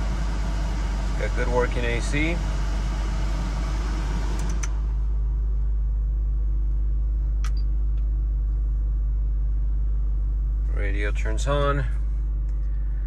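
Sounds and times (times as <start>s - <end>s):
air-conditioning blower rushing: 0.0s - 5.7s
car engine idling: 0.0s - 13.0s.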